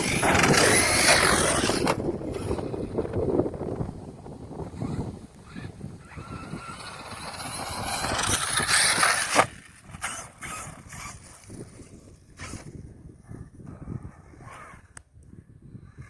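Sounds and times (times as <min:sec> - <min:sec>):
rattling and crunching: 0:00.0 - 0:02.7
toy truck motor whine: 0:00.0 - 0:03.0, 0:04.7 - 0:12.7.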